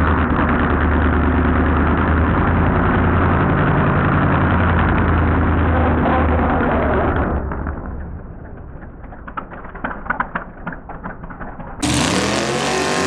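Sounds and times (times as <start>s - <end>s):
engine at full throttle: 0.0s - 8.2s, 11.8s - 13.0s
engine crackles and pops: 0.0s - 13.0s.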